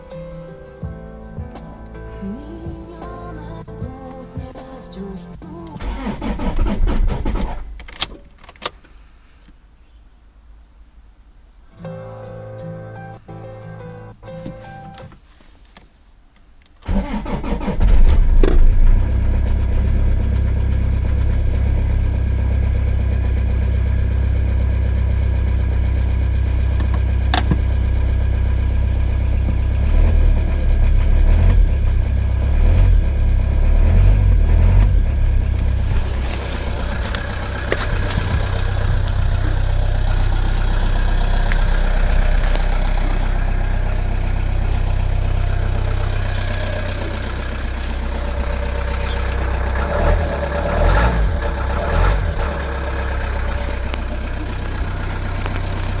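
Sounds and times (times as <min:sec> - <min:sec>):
diesel engine idling: 0:05.2 - 0:07.8, 0:16.8 - 0:56.0.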